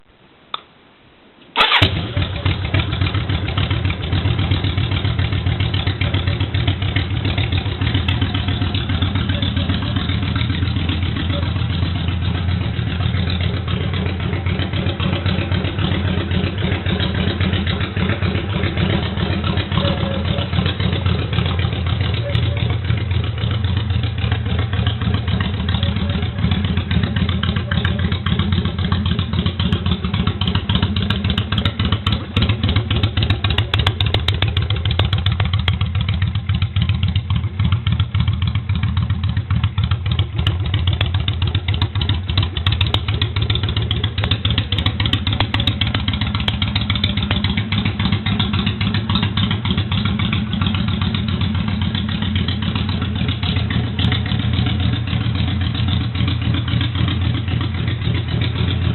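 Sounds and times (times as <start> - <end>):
motorcycle engine idling: 1.6 - 58.9.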